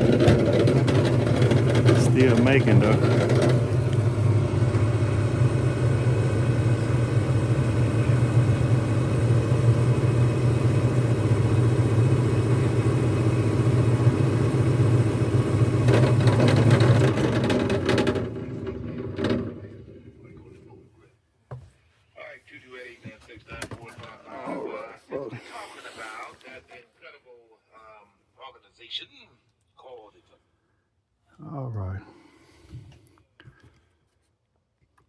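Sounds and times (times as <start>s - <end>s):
fan motor droning: 0.0s - 20.8s.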